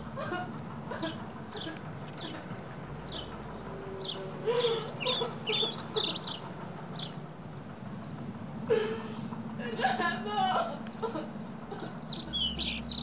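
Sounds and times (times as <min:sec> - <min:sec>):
small bird chirping: 0:04.0 - 0:08.2, 0:10.9 - 0:13.0.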